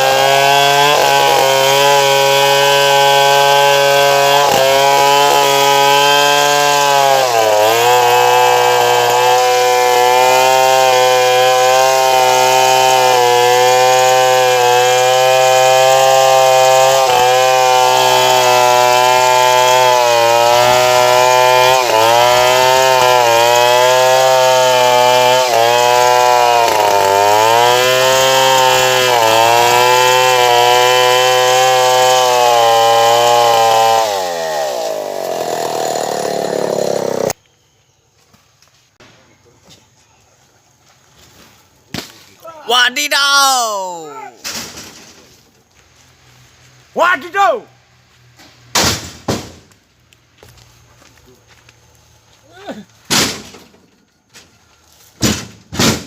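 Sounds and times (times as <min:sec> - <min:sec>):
chainsaw cutting wood: 0:00.0 - 0:37.4, 0:48.4 - 0:49.8, 0:55.2 - 0:56.0.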